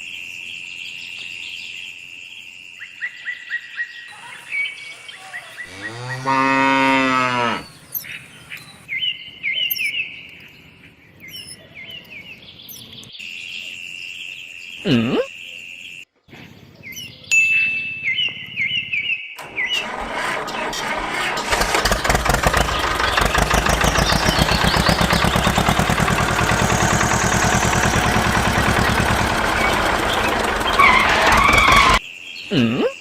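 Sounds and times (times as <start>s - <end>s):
tractor engine chugging: 19.4s - 32.0s.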